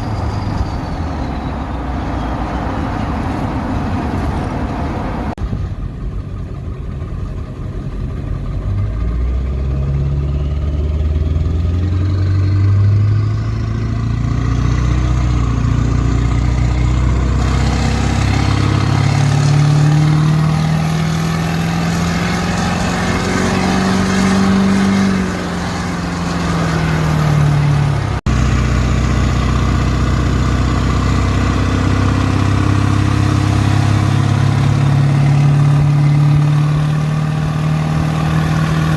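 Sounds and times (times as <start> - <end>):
diesel engine revving: 0.0 - 38.9
high turbo whistle: 17.4 - 28.2.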